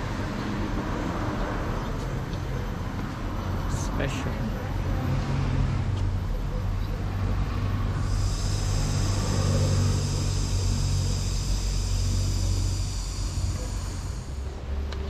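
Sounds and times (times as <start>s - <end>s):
cicadas buzzing: 7.2s - 15.0s.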